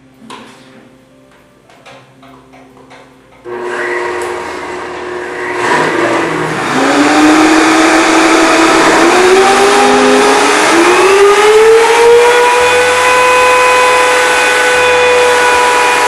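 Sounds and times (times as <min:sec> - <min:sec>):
blender motors whining: 0:03.5 - 0:16.0.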